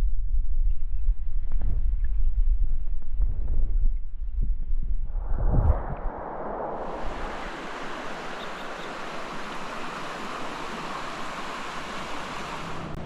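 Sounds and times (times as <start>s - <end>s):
running water rushing: 6.7s - 13.0s.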